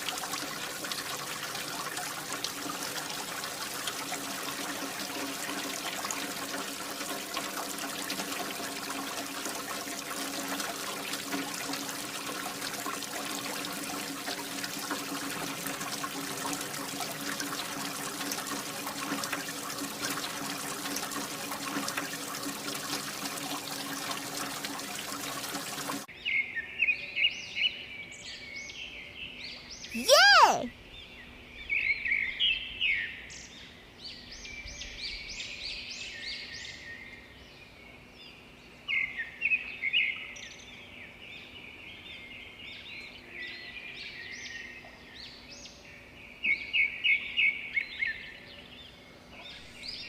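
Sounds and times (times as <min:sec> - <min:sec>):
water pouring and splashing: 0:00.0 - 0:26.1.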